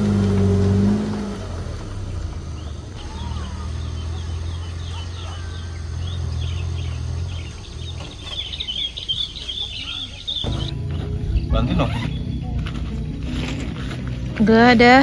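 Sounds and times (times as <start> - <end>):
birds chirping: 0.0 - 15.0
minivan engine humming: 0.0 - 15.0
insects chirring: 1.4 - 13.2.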